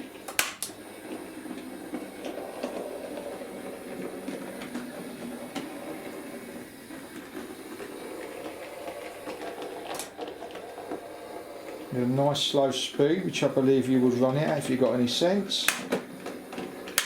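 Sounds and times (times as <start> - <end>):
model train wheels clicking: 11.7 - 17.0.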